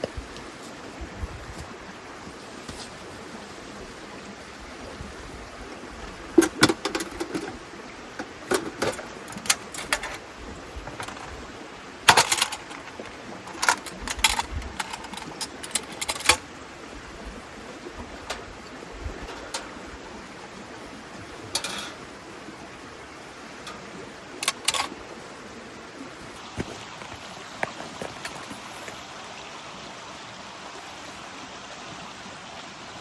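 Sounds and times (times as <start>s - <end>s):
steady background hiss: 0.0s - 33.0s
gear clinking and knocking: 6.4s - 7.6s, 8.2s - 11.4s, 12.1s - 16.4s, 24.4s - 25.0s.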